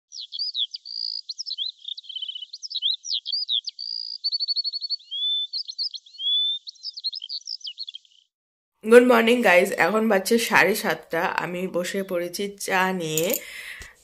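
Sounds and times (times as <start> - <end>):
songbird singing: 0.1 - 8.3.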